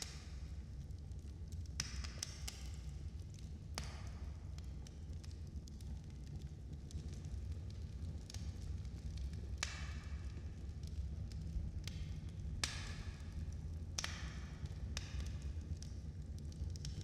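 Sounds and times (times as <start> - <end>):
logs crackling and popping: 4.6 - 17.0.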